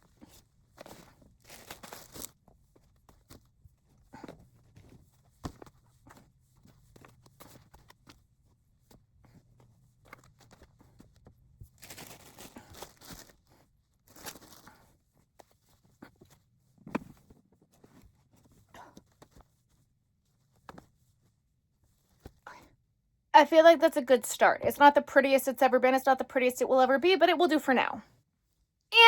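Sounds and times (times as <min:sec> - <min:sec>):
yarn rustling: 0:00.9 - 0:02.4.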